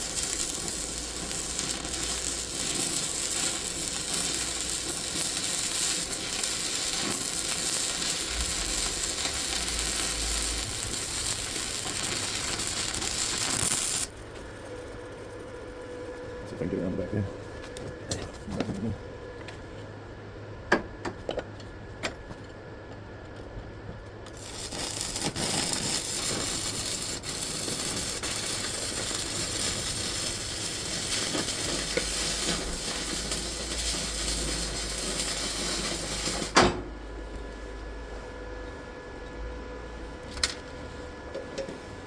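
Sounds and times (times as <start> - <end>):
welding arc crackling hiss: 0.0 - 14.2, 24.3 - 36.8.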